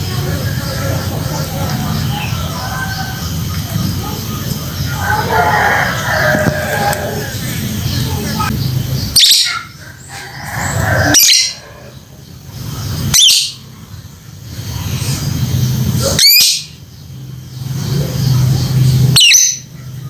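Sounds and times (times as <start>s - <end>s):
steady low hum: 0.0s - 20.0s
lovebird shrill calls: 13.1s - 13.6s, 19.1s - 19.7s.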